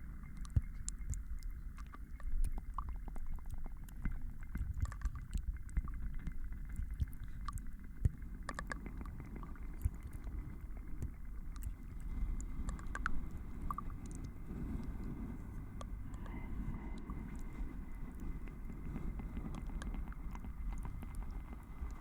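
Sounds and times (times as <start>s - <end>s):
low rumble: 0.0s - 22.0s
soft hiss: 0.0s - 22.0s
small clicks and taps: 0.3s - 11.8s.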